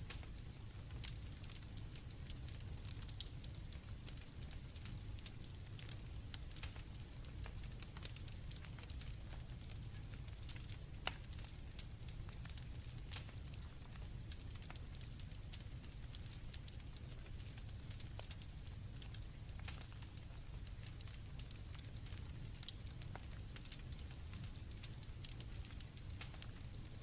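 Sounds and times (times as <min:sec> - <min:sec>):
campfire crackling and popping: 0:00.0 - 0:27.0
crickets trilling: 0:00.0 - 0:27.0.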